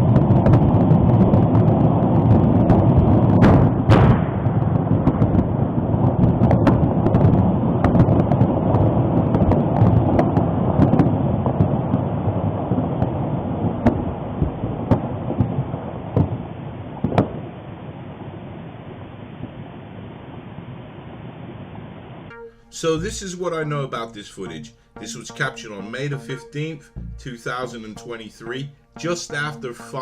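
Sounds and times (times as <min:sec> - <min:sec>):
sharp crackles and clicks: 0:00.0 - 0:23.2
low rumbling noise: 0:00.0 - 0:23.5, 0:26.8 - 0:27.8.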